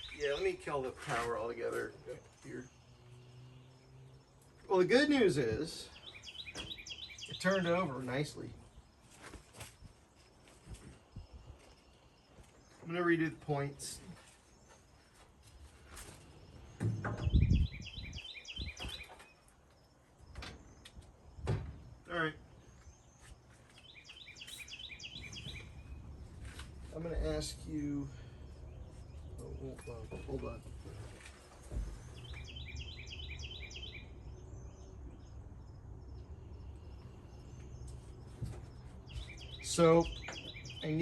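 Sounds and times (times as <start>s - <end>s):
songbird chirping: 0.0s - 41.0s
heavy low thuds: 16.8s - 18.2s.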